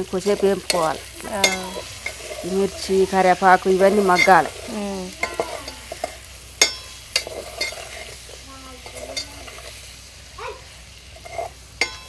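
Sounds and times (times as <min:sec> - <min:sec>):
meat sizzling in a pan: 0:00.0 - 0:12.0
spoon knocking against pan: 0:05.2 - 0:07.8, 0:11.8 - 0:12.0.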